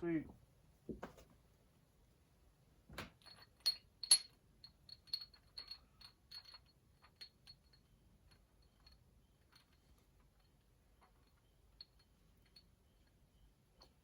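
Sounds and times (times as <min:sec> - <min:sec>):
small metal parts clinking: 0:03.2 - 0:14.0.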